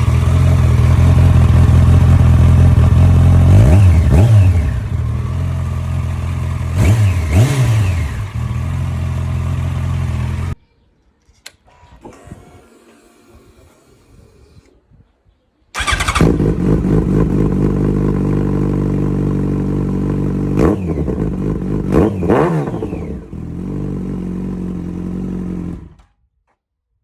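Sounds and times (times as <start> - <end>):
motorcycle engine idling: 0.0 - 10.6, 15.8 - 26.0.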